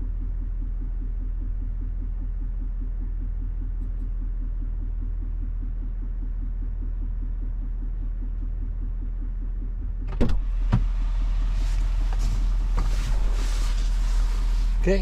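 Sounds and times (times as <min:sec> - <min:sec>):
diesel engine idling: 0:10.4 - 0:15.0.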